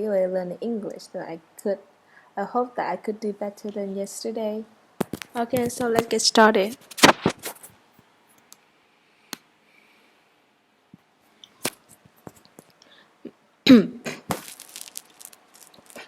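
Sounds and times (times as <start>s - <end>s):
person clearing throat: 13.7s - 14.3s.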